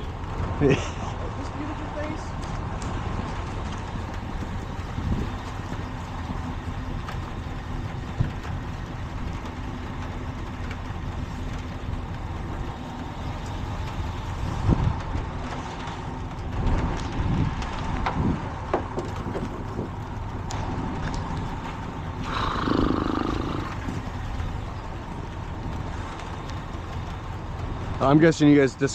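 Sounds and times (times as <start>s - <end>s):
truck engine idling: 0.0s - 28.9s
sharp knocks and clatter: 13.4s - 22.1s.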